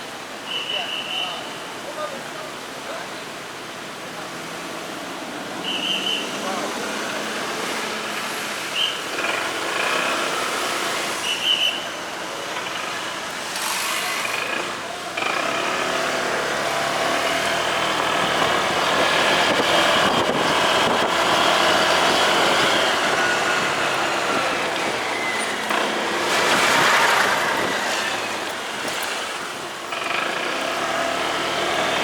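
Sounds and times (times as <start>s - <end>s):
road and wind noise: 0.0s - 32.0s
motorcycle engine: 12.4s - 32.0s.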